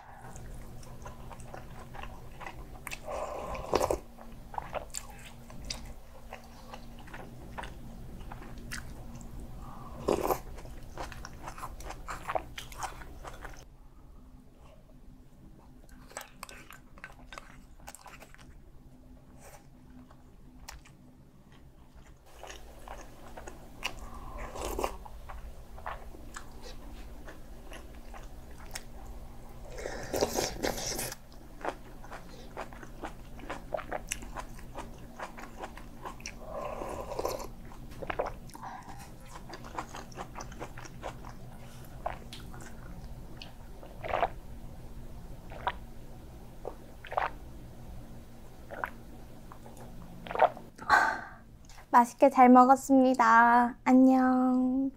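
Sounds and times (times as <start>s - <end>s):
biting and chewing: 15.8s - 18.6s, 30.0s - 44.4s.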